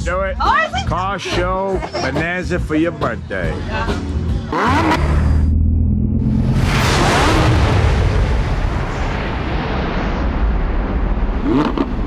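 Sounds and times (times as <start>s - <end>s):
loud rumbling boom: 5.4s - 12.0s.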